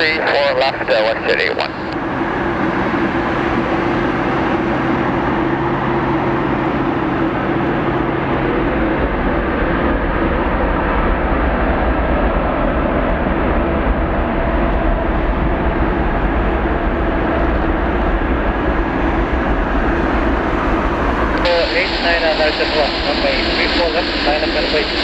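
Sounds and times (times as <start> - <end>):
jet engines rumbling at takeoff: 0.0 - 25.0.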